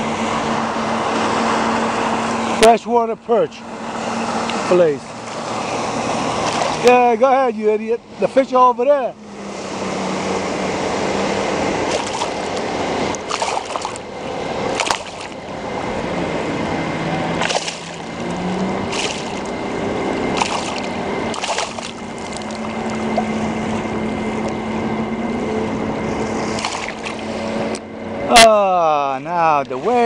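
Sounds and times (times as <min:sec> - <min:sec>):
motorboat engine droning: 0:00.0 - 0:30.0
water splashing against kayak: 0:05.3 - 0:07.0, 0:11.8 - 0:15.6, 0:17.3 - 0:23.8, 0:26.1 - 0:27.7.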